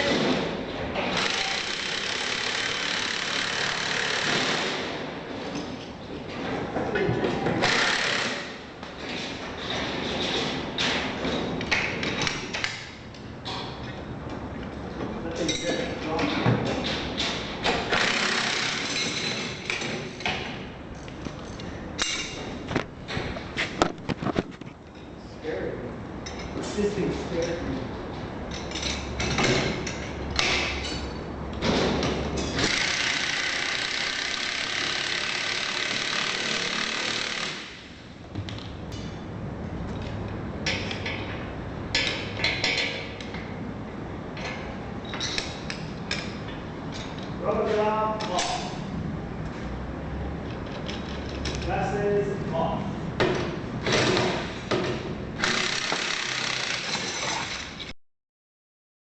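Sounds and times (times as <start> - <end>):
metal tools clanking: 15.3 - 17.4
hand tools and metal parts clinking: 15.4 - 25.0, 44.4 - 48.8, 53.8 - 57.9.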